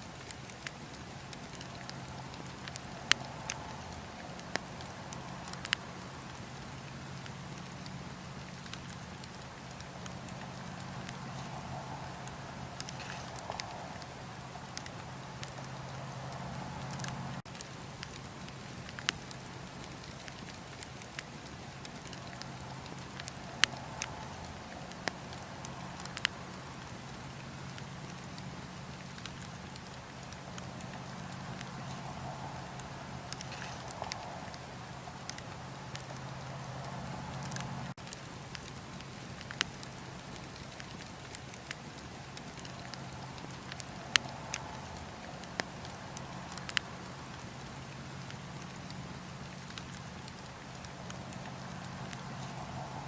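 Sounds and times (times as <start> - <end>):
bonfire crackling and popping: 0.0 - 53.0
steady low hum: 0.0 - 53.0.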